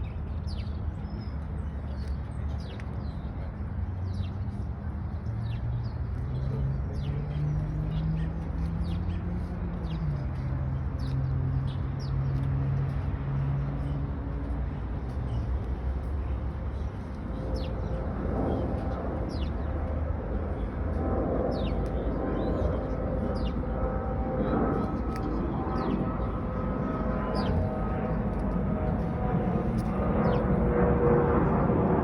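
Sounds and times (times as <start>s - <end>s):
birds chirping: 21.5s - 30.8s.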